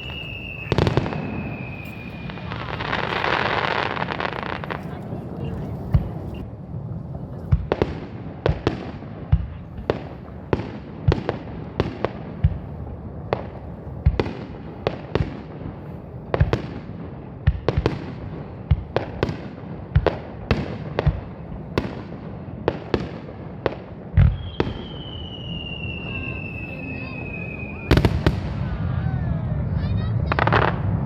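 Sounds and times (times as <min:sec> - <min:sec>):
high whistling tone falling in pitch: 0:00.0 - 0:03.0, 0:24.4 - 0:28.0
fireworks bursting with sharp bangs: 0:00.0 - 0:31.0.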